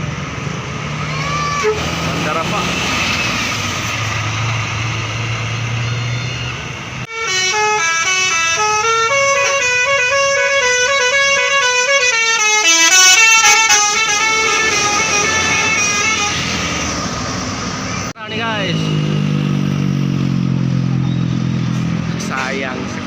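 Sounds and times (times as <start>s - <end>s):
vehicle engine hum: 0.0s - 23.0s
multi-trumpet bus horn tune: 7.0s - 16.8s.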